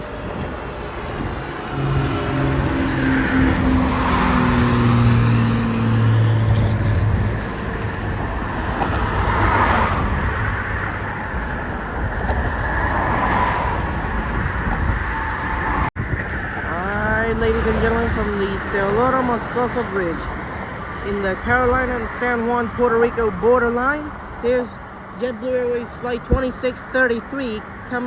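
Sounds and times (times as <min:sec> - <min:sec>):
cars passing by: 0:00.0 - 0:28.0.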